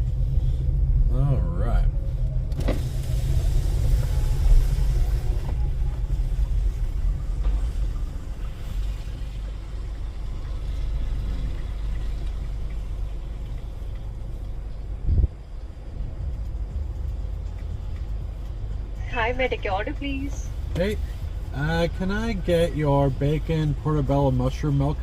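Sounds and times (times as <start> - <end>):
car engine and road rumble: 0.0 - 25.0.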